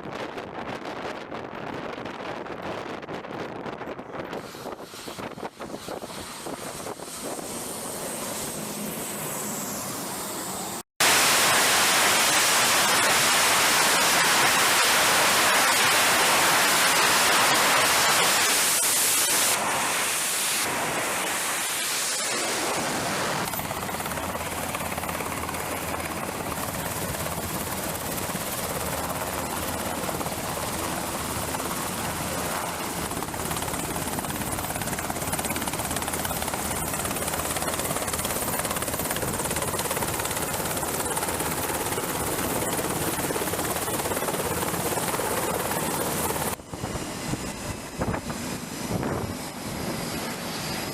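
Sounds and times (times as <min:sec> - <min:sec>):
aircraft engines running: 0:00.0 - 0:50.9
wind: 0:00.0 - 0:50.9
sea noise: 0:04.3 - 0:50.9.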